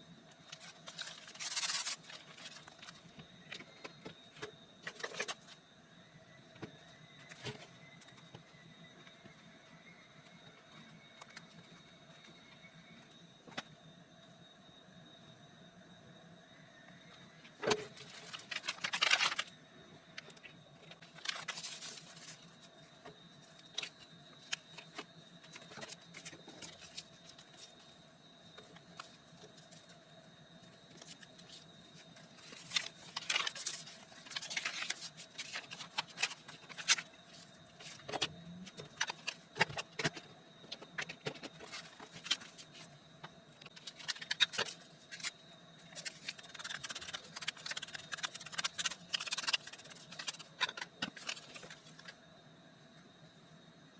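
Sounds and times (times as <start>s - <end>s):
faint steady hum: 0.0s - 53.9s
paper rustling: 0.5s - 3.0s, 21.2s - 22.5s, 32.4s - 37.0s, 43.6s - 52.1s.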